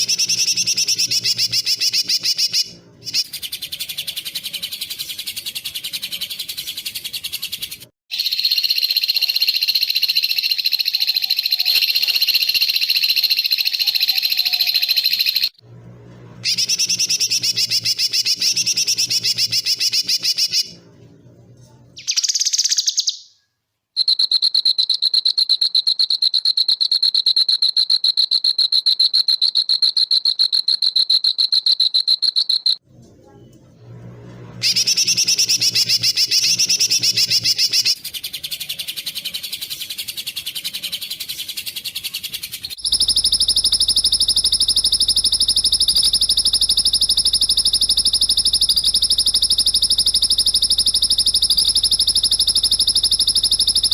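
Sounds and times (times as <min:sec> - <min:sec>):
high-pitched insect trill: 0:08.2 - 0:15.6, 0:42.8 - 0:53.9
warbling bird phrase: 0:10.6 - 0:15.5.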